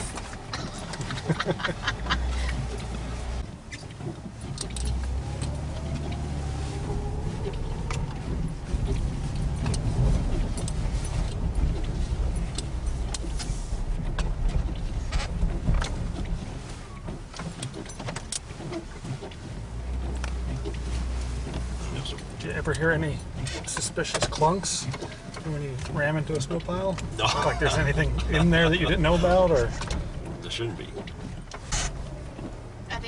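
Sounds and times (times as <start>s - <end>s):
snowplow engine: 0.0s - 33.0s
sharp knocks and clatter: 7.4s - 27.3s.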